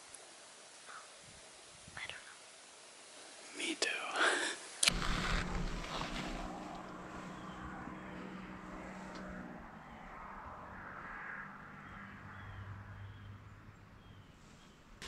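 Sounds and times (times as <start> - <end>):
low steady hum: 4.8 - 15.0.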